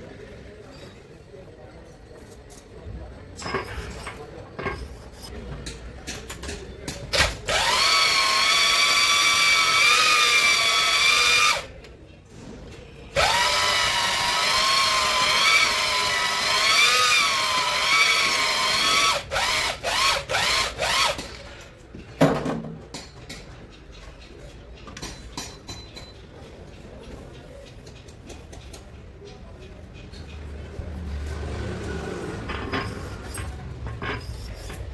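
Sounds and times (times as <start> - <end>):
electric drill whining: 7.5 - 11.7, 13.2 - 21.2.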